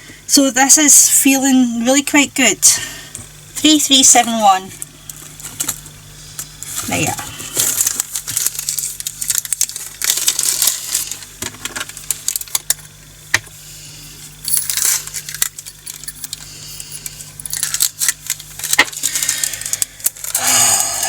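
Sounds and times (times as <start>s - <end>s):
tiny beads rattling into container: 17.0s - 19.2s.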